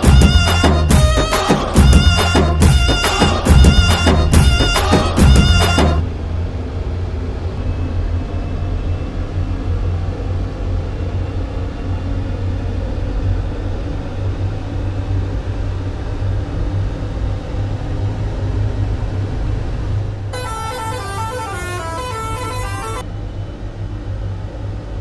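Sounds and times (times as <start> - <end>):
musical air horn tune: 0.0 - 6.0, 20.3 - 23.0
truck diesel engine rumbling: 20.4 - 23.0.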